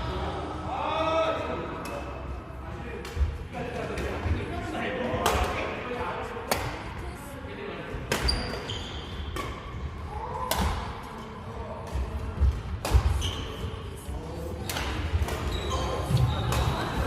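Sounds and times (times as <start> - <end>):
shoes squeaking on court floor: 8.2 - 9.5, 13.1 - 13.8, 15.2 - 17.0.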